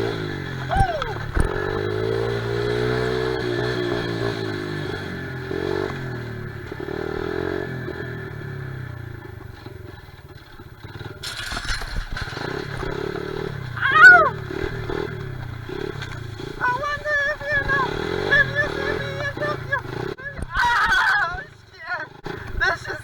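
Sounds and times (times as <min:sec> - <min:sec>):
small motorcycle engine running: 0:00.0 - 0:23.0.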